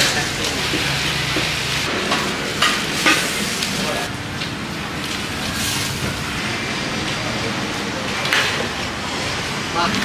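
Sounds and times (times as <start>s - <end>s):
food sizzling in hot oil: 0.0s - 4.1s, 4.7s - 6.7s.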